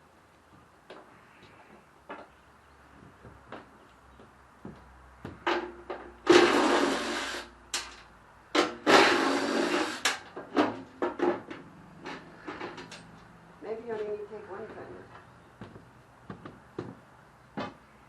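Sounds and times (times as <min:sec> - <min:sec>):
clicks and knocks of parts handled: 0:10.0 - 0:13.2.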